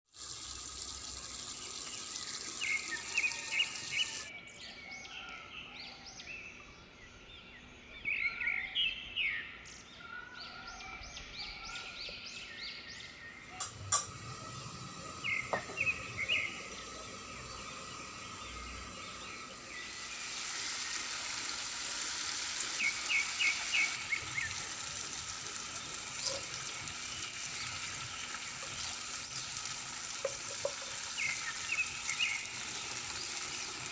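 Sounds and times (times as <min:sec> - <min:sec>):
spices sizzling in hot oil: 0:00.0 - 0:04.3, 0:13.6 - 0:33.9
birds chirping: 0:00.7 - 0:33.9.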